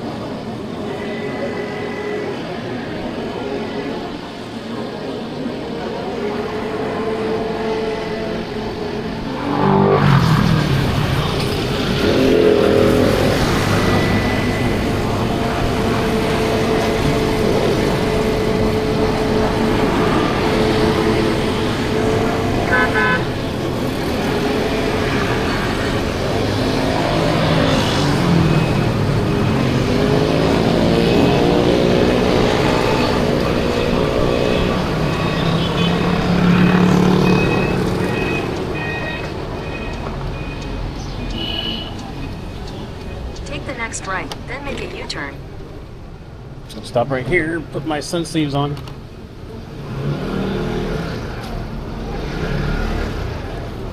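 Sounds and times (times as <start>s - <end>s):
motorbike traffic engines: 0.0s - 53.9s
horn beeps: 0.8s - 4.3s, 12.3s - 23.6s, 26.8s - 45.4s.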